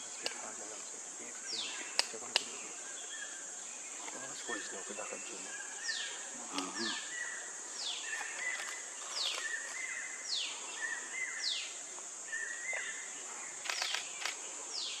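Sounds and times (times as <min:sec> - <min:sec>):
sharp clicks: 0:01.9 - 0:02.5, 0:08.1 - 0:09.8, 0:13.6 - 0:14.4.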